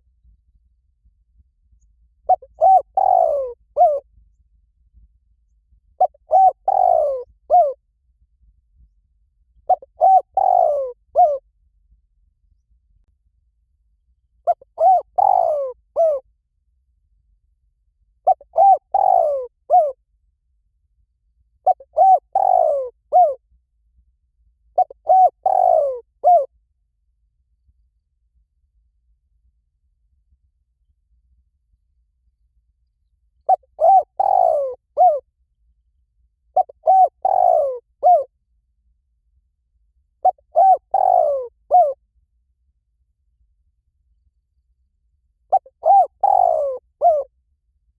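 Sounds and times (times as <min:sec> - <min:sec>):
dove cooing: 0:02.3 - 0:04.0, 0:06.0 - 0:07.8, 0:09.7 - 0:11.4, 0:14.5 - 0:16.2, 0:18.2 - 0:20.0, 0:21.6 - 0:23.4, 0:24.8 - 0:26.5, 0:33.5 - 0:35.2, 0:36.6 - 0:38.3, 0:40.2 - 0:42.0, 0:45.5 - 0:47.3.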